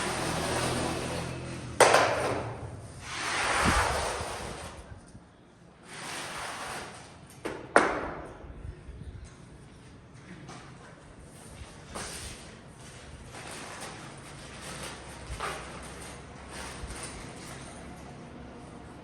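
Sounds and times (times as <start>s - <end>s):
scraping noise: 0.0s - 5.1s, 5.8s - 7.4s.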